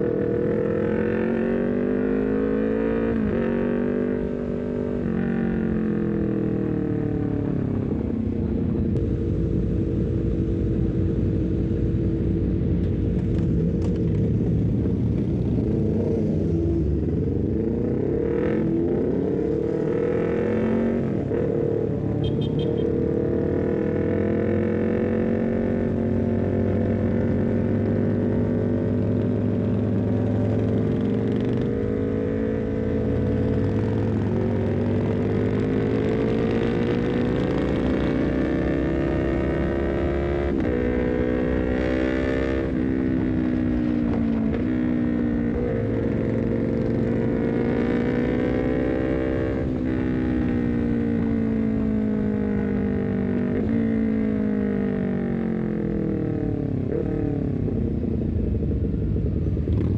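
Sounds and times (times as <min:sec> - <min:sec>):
motorcycle engine revving: 0:13.2 - 0:59.9.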